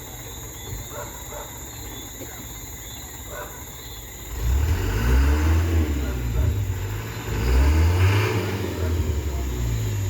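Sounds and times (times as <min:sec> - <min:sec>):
crickets chirring: 0:00.0 - 0:10.0
truck engine revving: 0:04.2 - 0:10.0.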